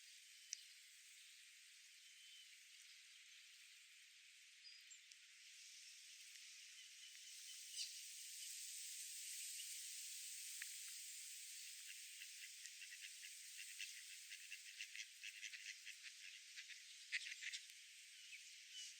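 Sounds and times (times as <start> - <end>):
faint outdoor hiss: 0.0 - 18.9
faint ticks: 0.4 - 0.7, 4.9 - 5.3, 6.2 - 7.9, 10.4 - 11.1, 11.8 - 17.9.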